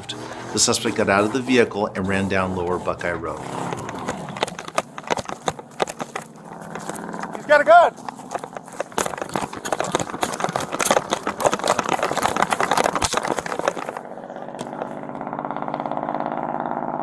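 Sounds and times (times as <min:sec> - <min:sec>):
vehicle engine running: 0:00.0 - 0:17.0
rustling: 0:02.8 - 0:15.0.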